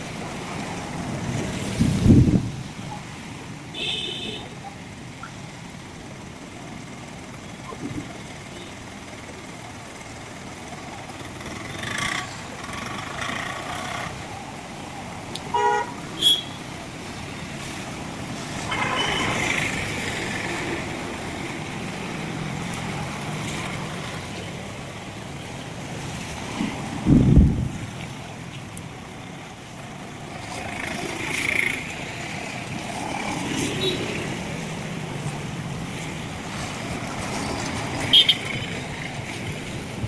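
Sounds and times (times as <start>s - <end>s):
road traffic: 0.0s - 40.0s
vehicle horns honking: 3.8s - 4.5s, 15.5s - 16.6s, 18.7s - 19.5s, 38.1s - 38.7s.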